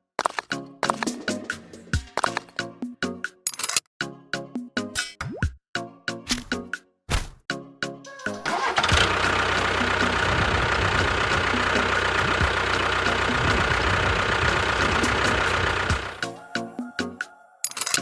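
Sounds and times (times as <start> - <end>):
motor running: 8.5 - 16.2.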